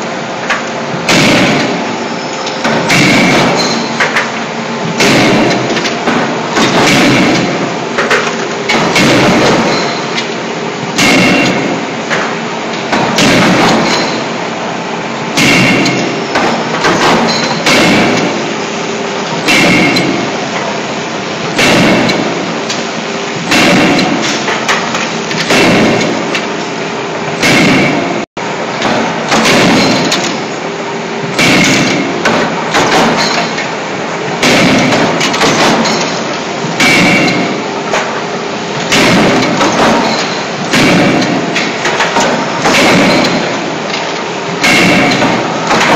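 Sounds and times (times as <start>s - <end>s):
steady machine hum: 0.0s - 45.9s
forging hammer striking metal: 1.1s - 1.8s, 2.6s - 10.2s, 10.9s - 12.3s, 12.9s - 14.3s, 15.4s - 18.4s, 19.4s - 20.7s, 21.5s - 22.5s, 23.5s - 26.5s, 27.4s - 28.2s, 28.8s - 30.4s, 31.4s - 33.7s, 34.4s - 38.2s, 38.9s - 43.6s, 44.6s - 45.9s.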